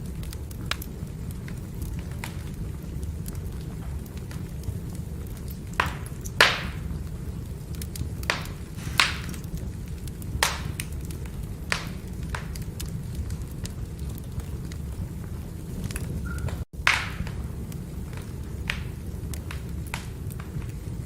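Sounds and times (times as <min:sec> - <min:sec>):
fire rushing: 0:00.0 - 0:21.0
firewood crackling pops: 0:00.0 - 0:21.0.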